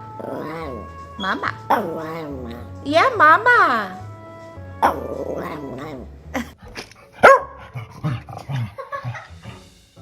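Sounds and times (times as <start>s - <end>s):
dog barking: 7.2s - 7.8s.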